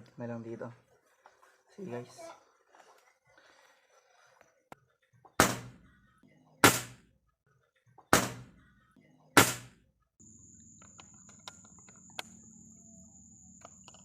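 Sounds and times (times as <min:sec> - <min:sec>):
airgun shots: 0:05.4 - 0:05.8, 0:06.6 - 0:07.0, 0:08.1 - 0:08.5, 0:09.4 - 0:09.8
faint hum with high tone: 0:10.2 - 0:14.0.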